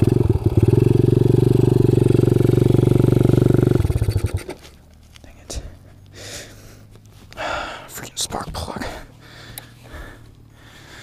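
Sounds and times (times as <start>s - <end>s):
motorbike engine stumbling and dying: 0.0s - 4.8s.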